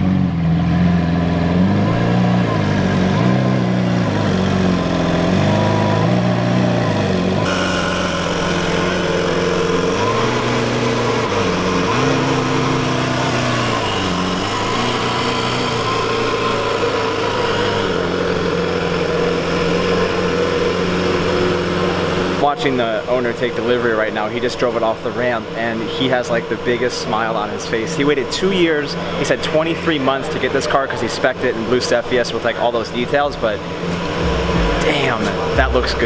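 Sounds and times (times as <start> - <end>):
car engine at low revs: 0.0 - 22.4, 31.5 - 36.0.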